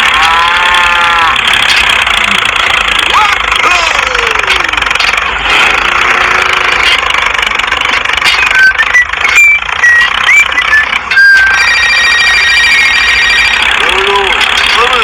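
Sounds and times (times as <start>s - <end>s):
small motor running: 0.0s - 15.0s
short high chirps: 8.3s - 13.6s.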